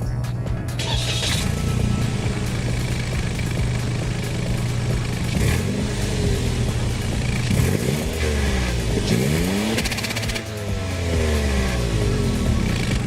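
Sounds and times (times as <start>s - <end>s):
car engine idling and revving: 0.6s - 13.0s.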